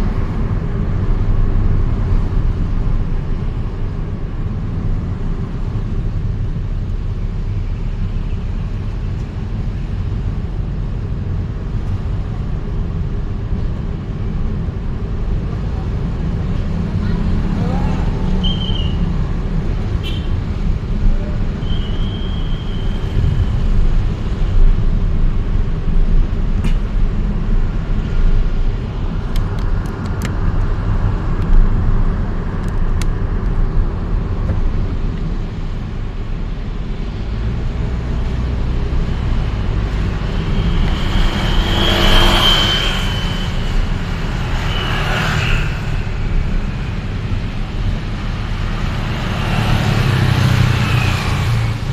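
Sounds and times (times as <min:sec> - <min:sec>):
road traffic rumble: 0:00.0 - 0:51.9
vehicle passing close: 0:38.0 - 0:51.9.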